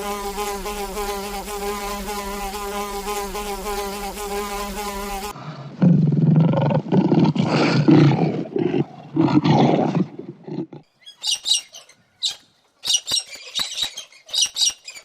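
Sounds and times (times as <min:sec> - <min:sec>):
big cat roaring growl: 0:05.5 - 0:10.8
bird chirps and squawks: 0:11.0 - 0:15.0.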